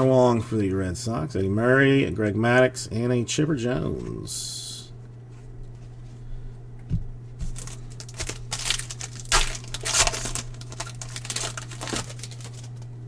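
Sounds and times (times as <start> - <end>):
low electrical hum: 0.0 - 13.0
plastic wrapper crinkling and tearing: 7.4 - 13.0.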